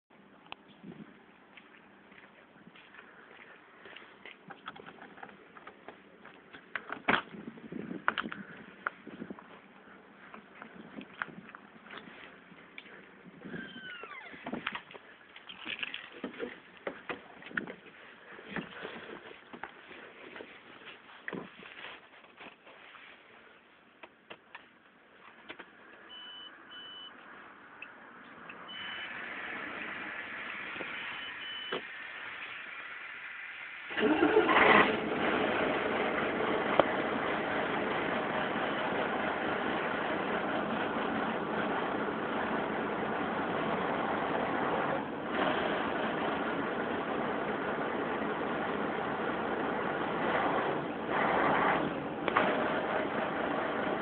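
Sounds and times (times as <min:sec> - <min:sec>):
dashboard warning beeps: 0:26.1 - 0:27.2, 0:28.7 - 0:29.2, 0:31.1 - 0:31.8
truck diesel engine idling: 0:28.8 - 0:54.0.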